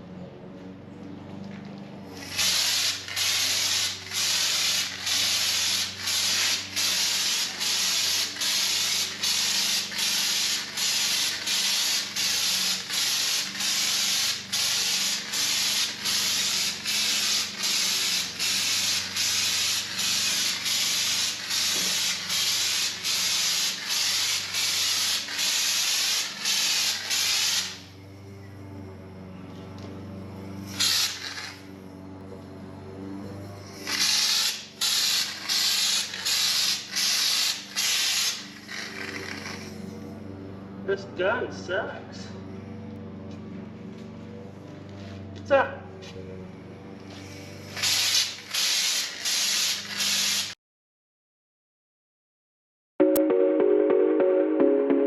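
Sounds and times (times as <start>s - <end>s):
spray gun hissing in pulses: 2.2s - 27.9s, 30.7s - 31.7s, 33.8s - 39.8s, 47.1s - 50.6s.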